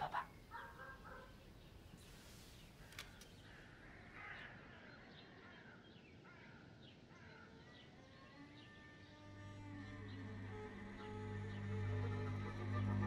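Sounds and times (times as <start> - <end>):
soft sustained music notes: 9.2 - 13.0.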